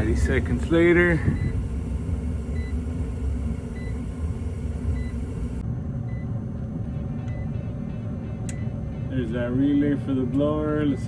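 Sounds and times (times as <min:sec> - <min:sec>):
furnace inducer motor rumble: 0:00.0 - 0:11.0.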